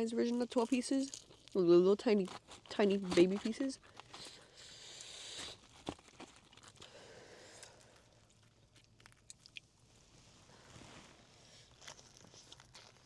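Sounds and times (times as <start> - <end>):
chewing and crunching: 0.2 - 9.8, 11.5 - 13.0
rustle: 9.9 - 13.0.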